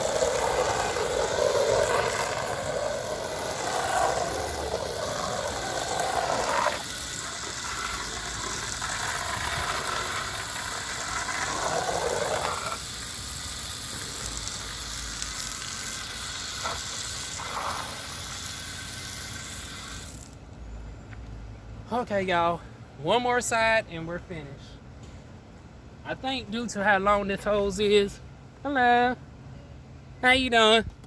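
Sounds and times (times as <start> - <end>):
hose spray hissing on siding: 0.0 - 20.4.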